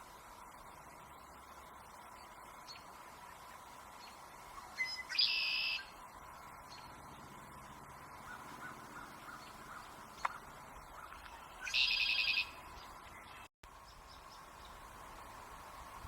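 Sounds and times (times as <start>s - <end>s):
bird harsh rasping call: 8.2s - 12.6s.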